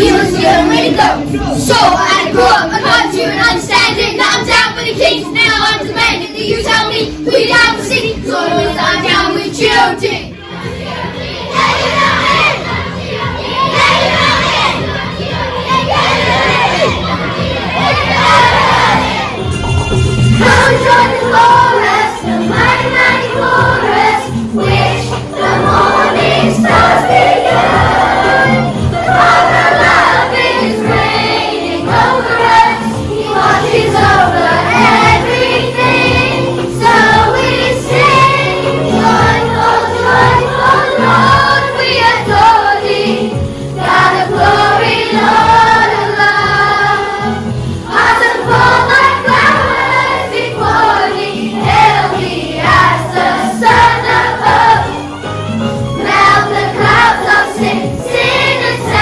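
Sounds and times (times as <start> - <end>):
children's choir singing gospel: 0.0 - 59.0
musical accompaniment: 0.0 - 59.0.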